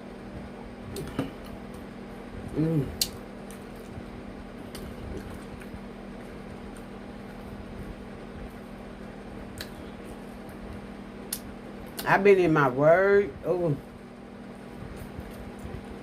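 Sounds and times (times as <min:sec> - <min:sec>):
low hum: 0:00.0 - 0:16.0
chewing food: 0:03.0 - 0:12.1.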